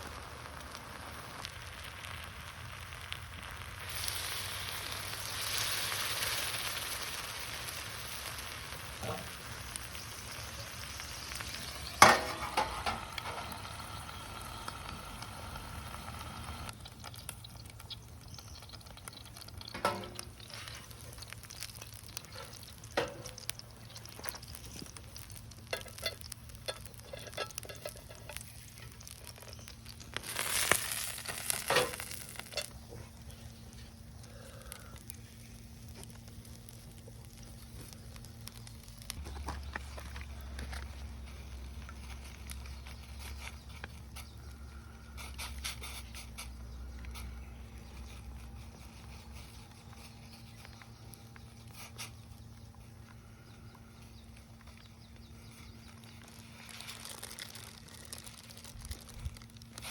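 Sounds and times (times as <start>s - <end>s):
food sizzling in a pan: 0.0s - 16.9s, 17.8s - 32.9s
cooking utensil clinking and scraping: 25.6s - 28.9s.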